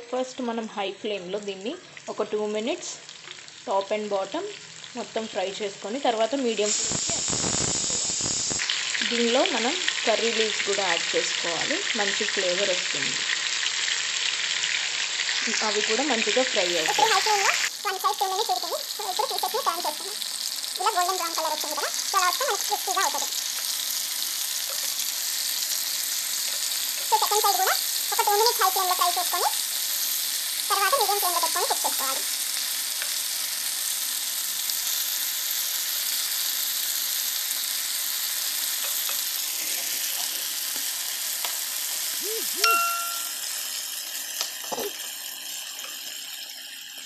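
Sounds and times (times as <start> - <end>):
chicken sizzling in a pan: 0.0 - 47.0
spoon stirring against pan: 23.0 - 29.1, 38.8 - 39.4.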